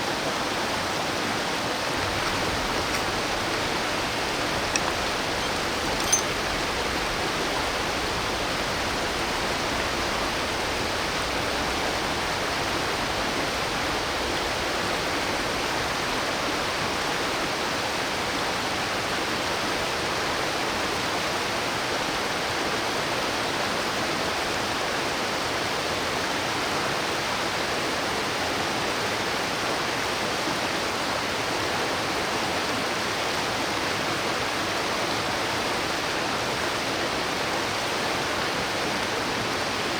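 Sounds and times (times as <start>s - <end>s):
mountain stream rushing water: 0.0s - 6.7s.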